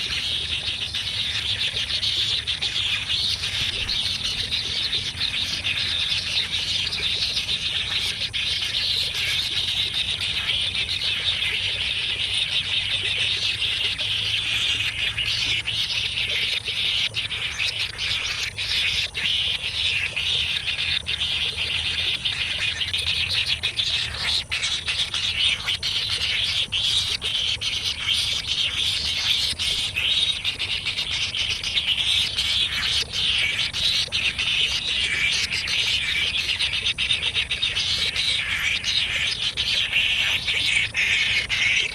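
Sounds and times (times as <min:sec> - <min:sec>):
baby birds chirping: 0:00.0 - 0:41.9.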